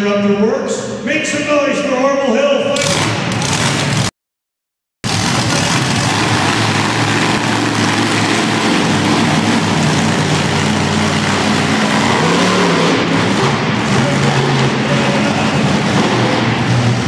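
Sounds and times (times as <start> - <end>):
monster truck engine revving: 2.7 - 4.1, 5.0 - 17.0.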